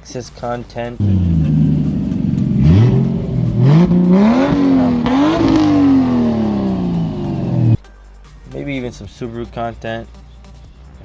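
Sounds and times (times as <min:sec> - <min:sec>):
car engine revving: 0:01.0 - 0:07.8.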